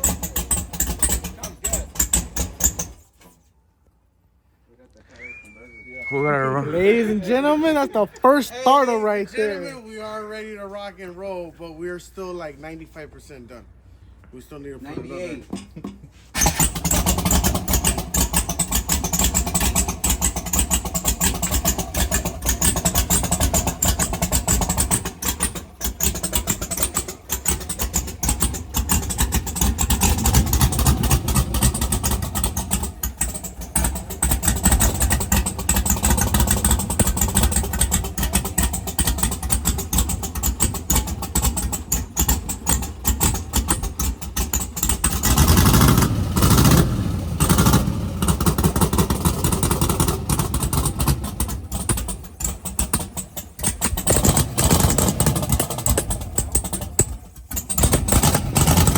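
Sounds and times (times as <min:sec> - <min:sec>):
engine running and revving: 0:16.4 - 0:58.9.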